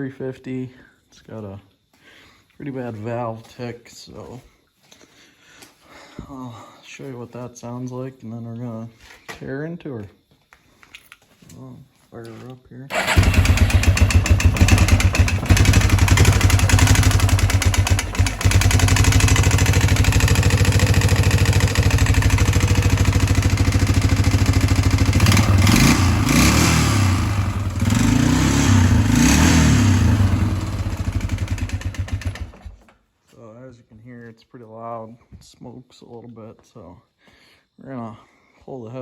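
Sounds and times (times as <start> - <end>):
engine revving: 12.9 - 32.7
atv engine idling with valve tick: 12.9 - 32.9.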